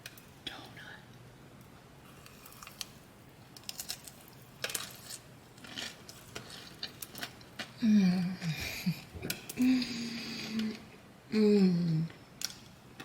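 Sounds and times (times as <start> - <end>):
crispy treat crunching: 2.1 - 7.8.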